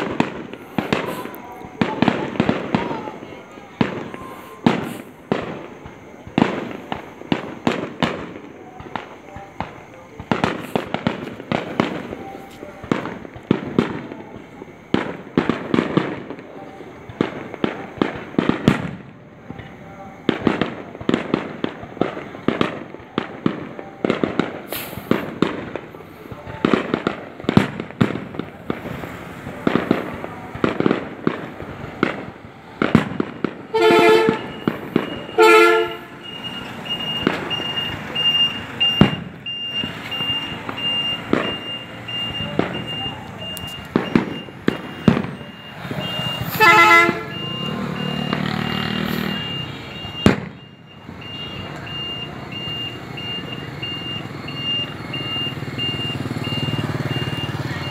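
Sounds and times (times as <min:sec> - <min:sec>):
fireworks banging: 0:00.0 - 0:57.9
vehicle horn toots: 0:33.7 - 0:34.6, 0:35.4 - 0:36.2, 0:45.9 - 0:50.2.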